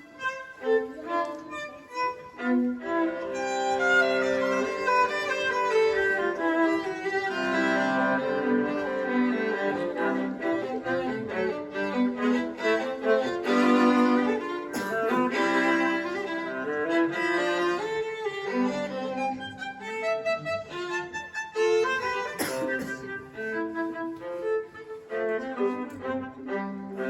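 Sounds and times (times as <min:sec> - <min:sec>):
violas playing a duet: 0:00.0 - 0:27.0.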